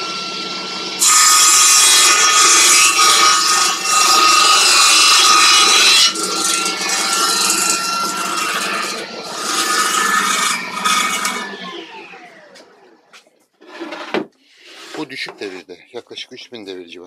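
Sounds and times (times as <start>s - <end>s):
motor and blade whine: 0.0s - 13.1s
saw blade rasping through board: 1.0s - 11.7s, 13.6s - 15.6s.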